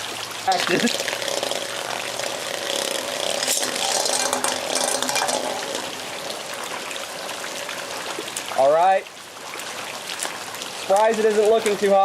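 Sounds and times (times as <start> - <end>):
heavy rain: 0.0 - 12.0
spinning tops whirring: 0.6 - 8.2
spinning tops clicking: 0.9 - 6.7.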